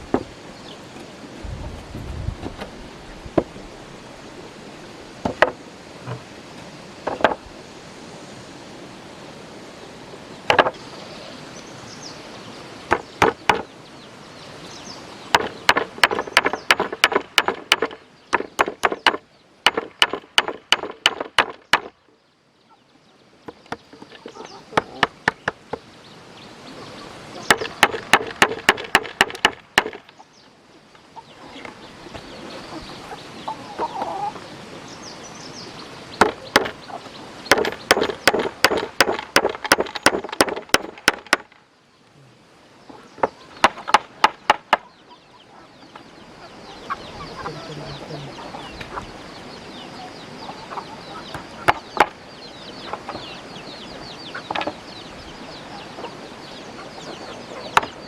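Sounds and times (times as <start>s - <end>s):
rapid sharp knocks: 7.0s - 7.4s, 10.5s - 10.8s, 12.9s - 13.7s, 15.3s - 22.0s, 27.5s - 30.1s, 36.2s - 36.8s, 37.5s - 41.6s, 43.2s - 44.8s, 51.6s - 52.2s
chickens clucking: 22.6s - 25.9s, 26.6s - 34.6s, 35.7s - 41.1s, 42.8s - 58.0s.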